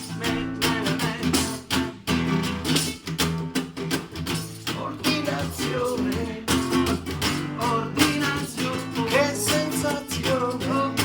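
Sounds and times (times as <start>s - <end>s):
person singing: 0.0s - 1.7s, 4.8s - 11.0s
acoustic guitar strumming: 0.0s - 11.0s.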